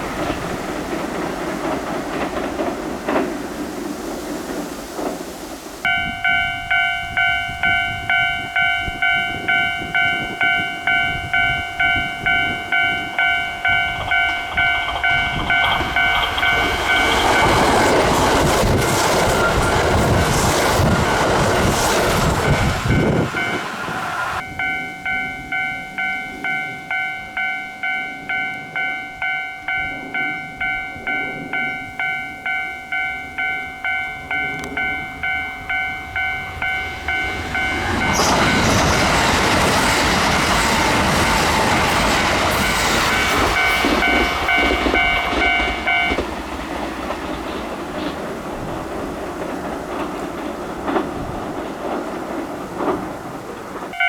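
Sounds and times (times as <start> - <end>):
train passing: 0.0 - 54.0
level crossing bell ringing: 5.9 - 18.0, 24.4 - 39.2, 42.6 - 46.2.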